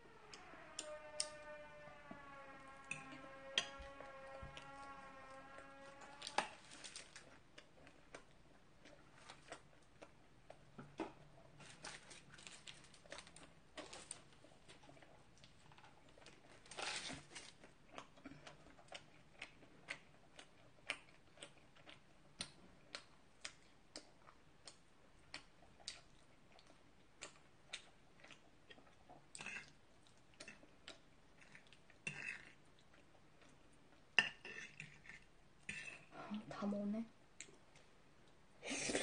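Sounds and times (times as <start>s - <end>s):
chewing with wet mouth clicks: 7.2s - 11.2s, 17.6s - 36.1s.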